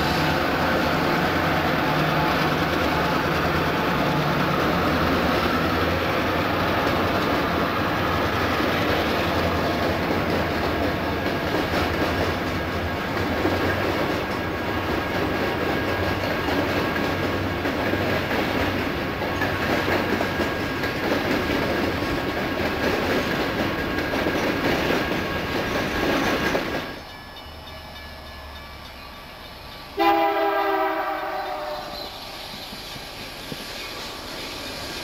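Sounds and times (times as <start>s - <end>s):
freight train wheels rumbling: 0.0s - 35.0s
locomotive air horn: 30.0s - 32.2s.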